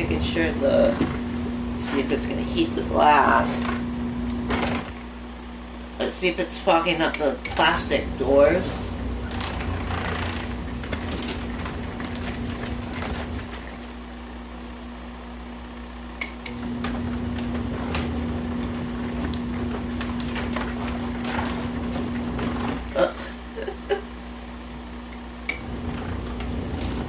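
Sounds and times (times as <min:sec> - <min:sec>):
washing machine motor hum: 0:00.0 - 0:27.0
churning water: 0:06.2 - 0:14.1, 0:16.5 - 0:24.0.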